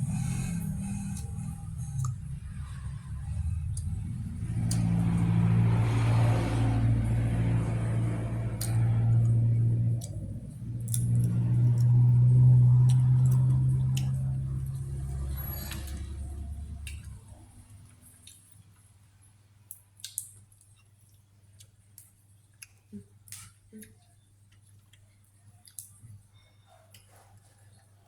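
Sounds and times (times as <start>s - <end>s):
vehicle engine droning: 0.0s - 18.3s.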